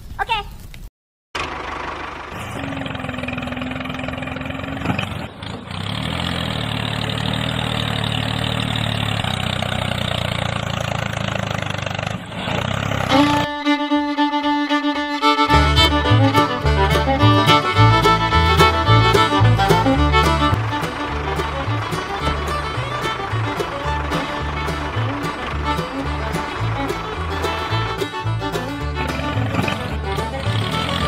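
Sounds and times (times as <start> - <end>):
fiddle music: 13.0 - 31.0
motor running: 13.0 - 31.0.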